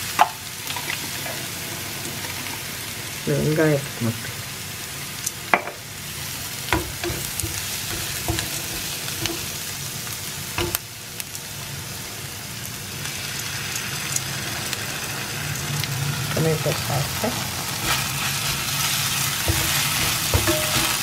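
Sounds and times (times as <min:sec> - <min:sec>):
vegetables sizzling in oil: 0:00.0 - 0:21.0
utensils knocking on pan: 0:06.7 - 0:09.7, 0:10.6 - 0:10.9, 0:17.8 - 0:21.0.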